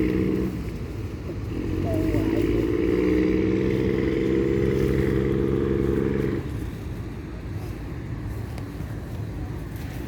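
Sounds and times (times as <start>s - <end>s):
small engine running: 0.0s - 6.5s.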